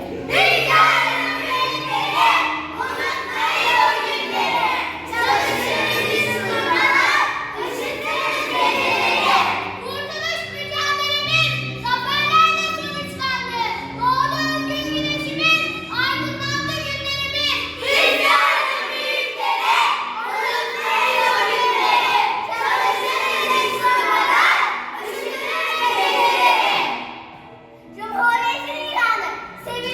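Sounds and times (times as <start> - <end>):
children singing: 0.0 - 9.9, 17.7 - 27.2
children shouting and cheering: 0.0 - 27.3, 28.0 - 29.9
music backing track: 0.0 - 29.9.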